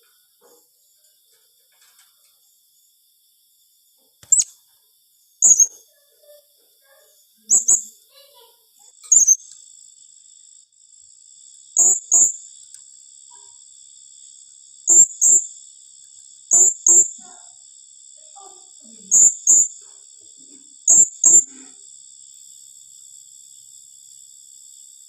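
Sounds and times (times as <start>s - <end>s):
parrot chirping shrilly: 4.2s - 4.5s, 5.4s - 5.7s, 7.5s - 7.9s, 9.1s - 9.4s, 11.8s - 12.4s, 14.9s - 15.4s, 16.5s - 17.2s, 19.1s - 19.7s, 20.9s - 21.5s.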